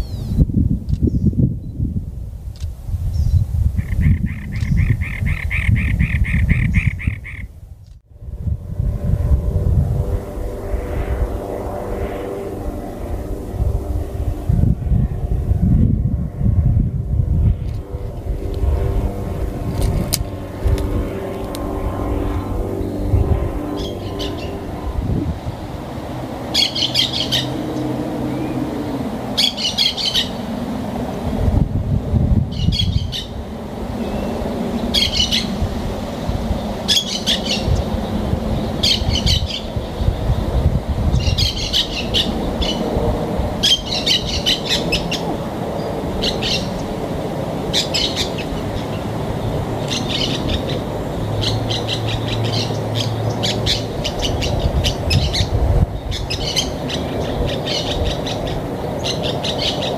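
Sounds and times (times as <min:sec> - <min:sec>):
bird calling in harsh bursts: 0:03.8 - 0:07.6, 0:23.6 - 0:24.9, 0:26.0 - 0:30.6, 0:32.5 - 0:33.4, 0:34.0 - 0:35.6, 0:36.6 - 0:40.3, 0:41.0 - 0:43.0, 0:43.6 - 0:59.9
low rumble: 0:05.8 - 0:36.8.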